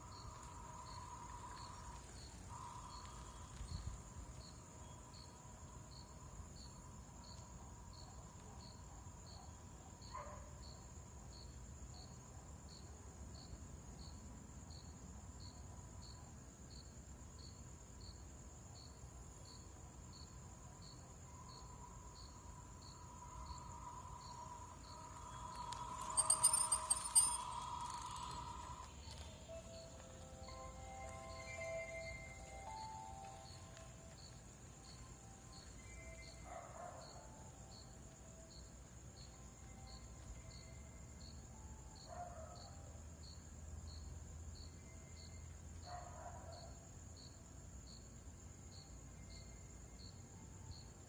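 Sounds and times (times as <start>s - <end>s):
high insect trill: 0.0s - 9.4s, 18.8s - 42.2s
crickets chirping: 0.0s - 51.0s.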